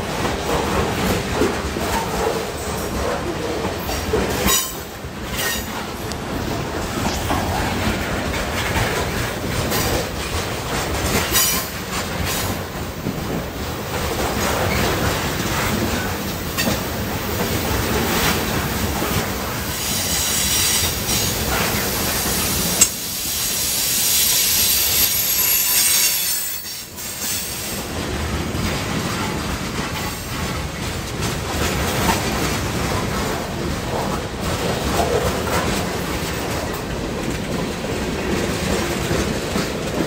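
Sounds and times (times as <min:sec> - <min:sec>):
train wheels rumbling on rails: 0:00.0 - 0:40.0
high wheel squeal: 0:24.0 - 0:27.6.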